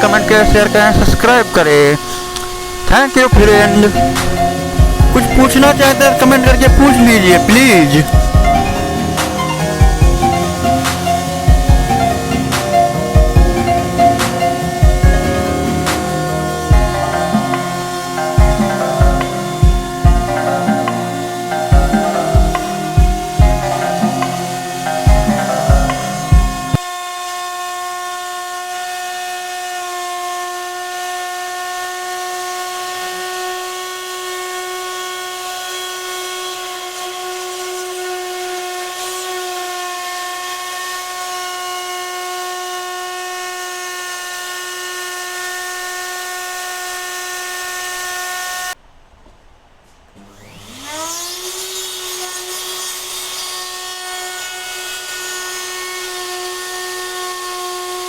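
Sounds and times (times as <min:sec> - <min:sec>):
router spindle whine: 0:00.0 - 0:48.8, 0:50.2 - 0:58.0.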